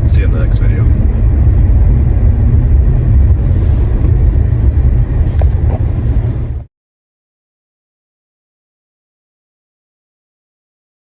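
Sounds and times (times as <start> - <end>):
loud low rumble: 0.0 - 6.7.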